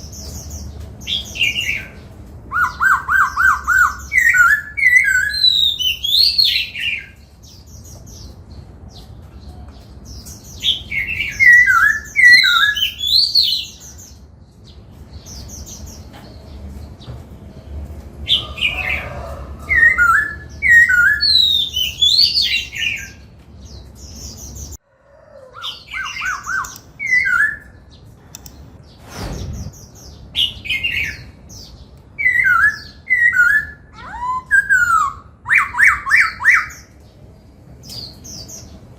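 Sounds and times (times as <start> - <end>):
bird singing whistled phrases: 2.5 - 7.2, 10.7 - 13.7, 19.8 - 23.2, 25.7 - 27.8, 32.2 - 36.9.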